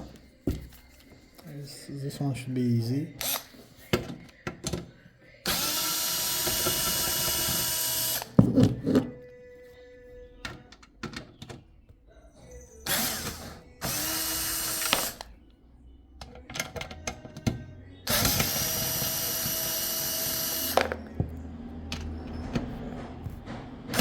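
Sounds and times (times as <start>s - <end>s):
electric screwdriver running: 3.2s - 3.5s, 5.5s - 8.4s, 12.9s - 15.3s, 18.1s - 21.0s.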